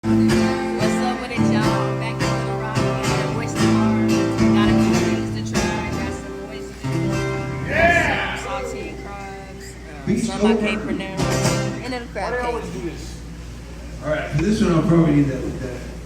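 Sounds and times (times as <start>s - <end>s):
acoustic guitar strumming chords: 0.0s - 12.2s.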